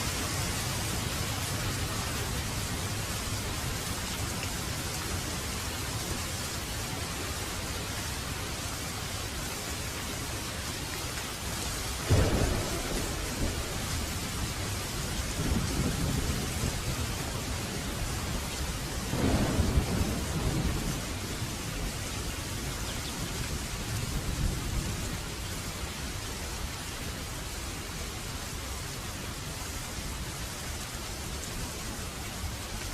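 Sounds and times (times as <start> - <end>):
heavy rain: 0.0 - 32.9
thunder rumbling: 12.0 - 25.3.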